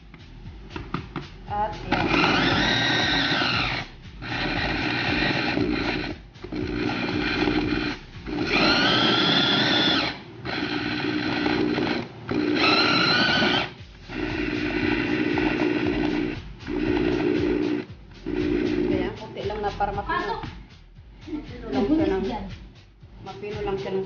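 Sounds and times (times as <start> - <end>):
mini chopper motor whirring: 1.9 - 19.1.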